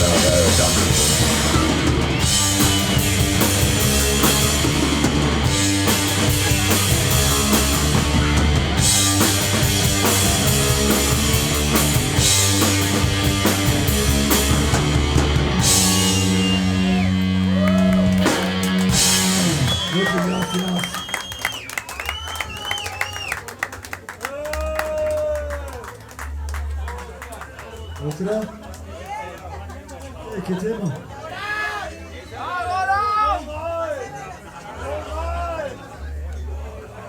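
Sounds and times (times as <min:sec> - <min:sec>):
hardcore punk band playing: 0:00.0 - 0:21.5.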